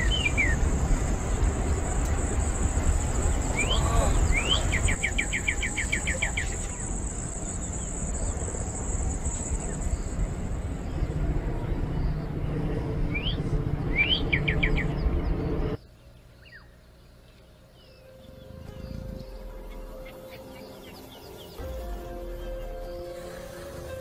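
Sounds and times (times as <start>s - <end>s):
rising bird chirps: 0.0s - 11.1s
steady low rumble: 0.0s - 16.2s
birds chirping: 0.0s - 24.0s.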